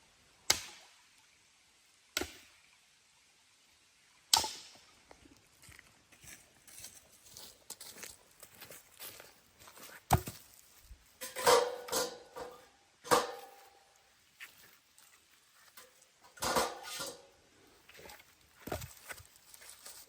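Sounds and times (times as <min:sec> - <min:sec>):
metal cookware clinking: 0:11.2 - 0:13.8, 0:15.8 - 0:17.3.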